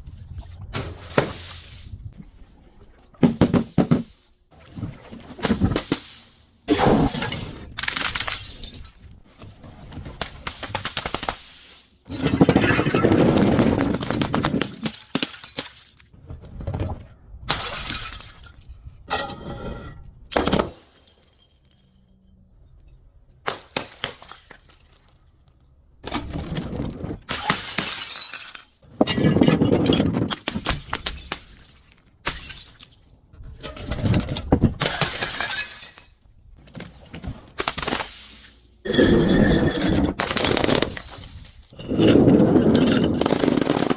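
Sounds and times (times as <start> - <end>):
glass shattering and crunching: 7.8 - 9.2, 12.2 - 16.2, 17.5 - 18.7, 20.3 - 22.2, 23.4 - 25.7, 27.3 - 33.2, 34.8 - 36.2, 38.9 - 43.9.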